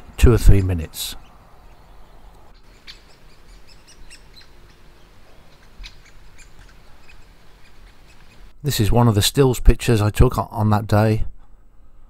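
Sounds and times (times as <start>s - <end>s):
high bird chirps: 1.2s - 8.5s.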